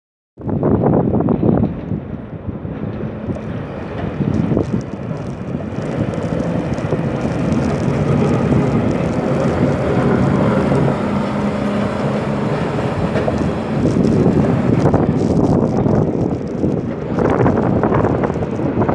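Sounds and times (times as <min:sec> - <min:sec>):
steady low rumble: 0:00.4 - 0:18.9
wind buffeting microphone: 0:00.4 - 0:18.9
faint engine hum: 0:01.6 - 0:16.3.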